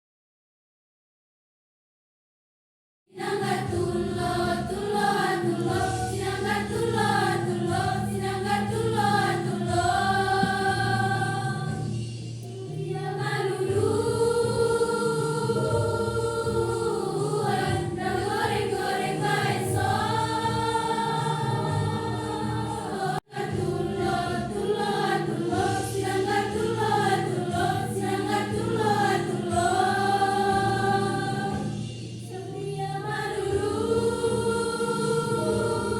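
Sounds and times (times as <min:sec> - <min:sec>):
choir singing: 0:03.1 - 0:35.9.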